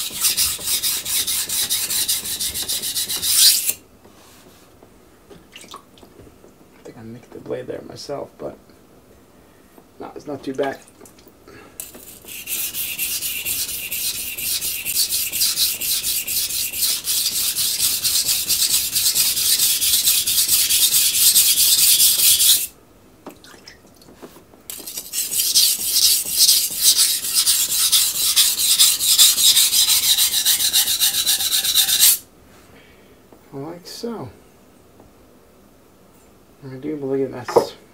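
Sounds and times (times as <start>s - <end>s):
knife grinding on water stone: 11.8s - 22.7s, 24.7s - 32.2s.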